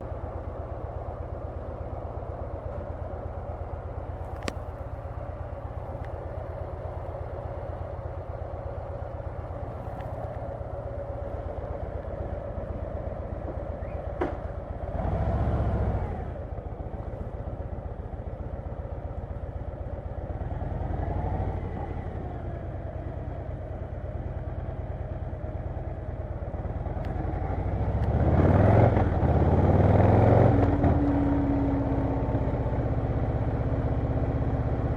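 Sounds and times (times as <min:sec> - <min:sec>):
motorcycle engine revving: 0:14.8 - 0:16.5, 0:26.8 - 0:33.1.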